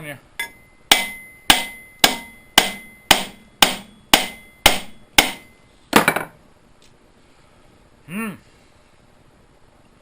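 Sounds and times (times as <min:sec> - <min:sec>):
hammer striking metal: 0:00.4 - 0:06.3.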